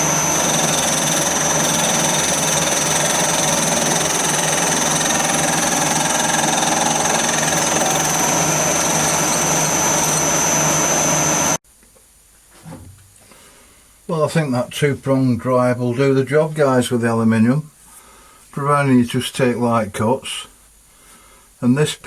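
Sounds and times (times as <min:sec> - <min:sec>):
metal lathe running with high whine: 0:00.0 - 0:11.6.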